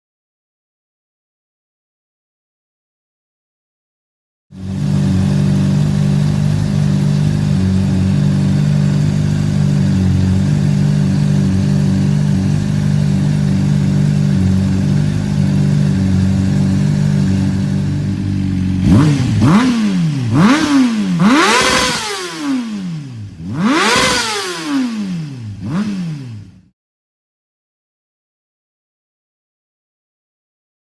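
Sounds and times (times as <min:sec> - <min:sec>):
motorcycle engine revving: 0:04.5 - 0:26.8
motorcycle engine idling: 0:04.6 - 0:26.7.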